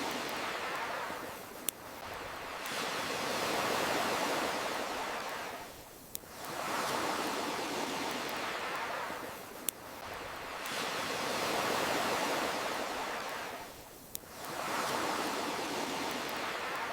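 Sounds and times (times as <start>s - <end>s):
campfire crackling: 0.0s - 16.9s
ocean waves washing in: 0.0s - 16.9s.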